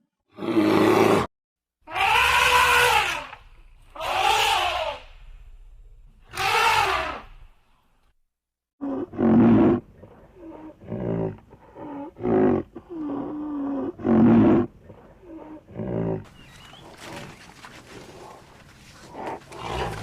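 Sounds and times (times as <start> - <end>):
large animal calling: 1.9 - 5.2, 6.3 - 7.4
background noise: 1.9 - 8.2, 8.8 - 20.0.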